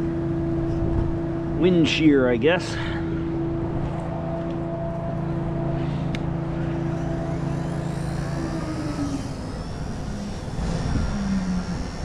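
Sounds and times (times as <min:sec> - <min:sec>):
micro helicopter motor whining: 0:04.7 - 0:12.0
wind rumbling on microphone: 0:06.6 - 0:12.0.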